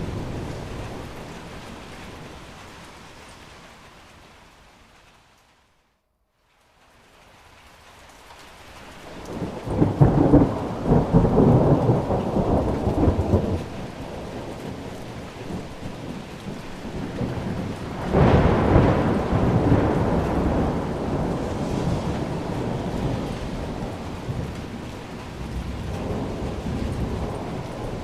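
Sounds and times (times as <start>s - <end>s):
thunder rumbling: 0.0s - 2.6s, 9.1s - 28.0s
steady rain: 0.0s - 28.0s.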